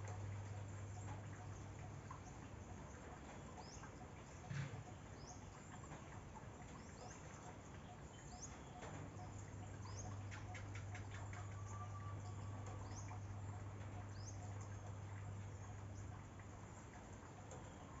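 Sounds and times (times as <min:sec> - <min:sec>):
faint outdoor ambience: 0:00.0 - 0:18.0.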